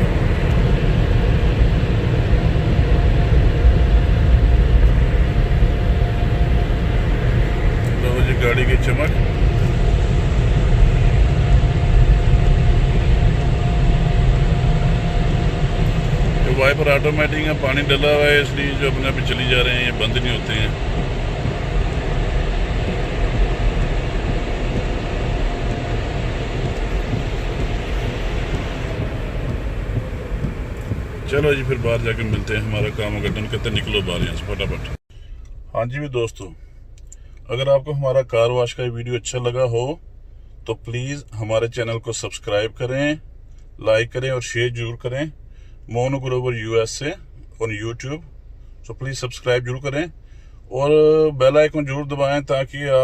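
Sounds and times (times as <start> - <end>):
air dryer blowing: 0.0 - 35.0
faint steady hum: 0.0 - 53.0.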